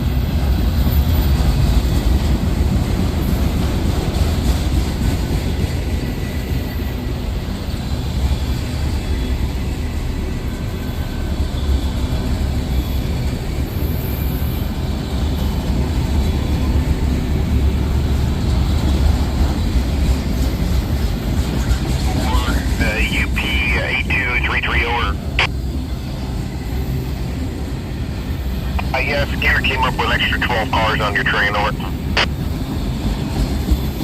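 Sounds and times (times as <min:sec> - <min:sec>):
train wheels on rails: 0:17.9 - 0:22.7.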